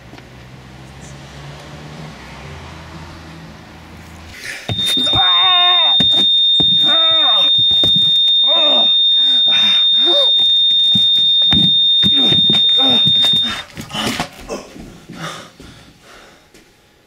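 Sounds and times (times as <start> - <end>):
loud high whine: 4.7 - 13.6.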